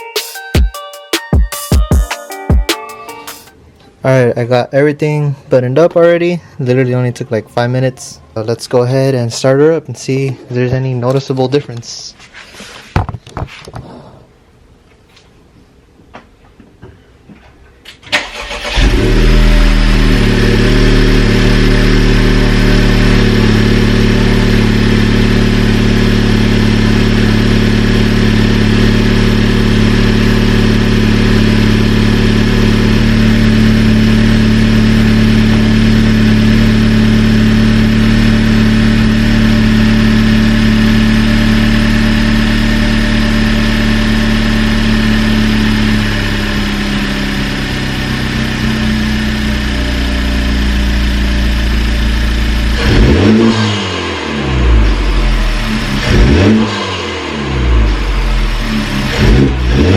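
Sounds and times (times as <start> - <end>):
car engine starting and idling: 17.9 - 59.9.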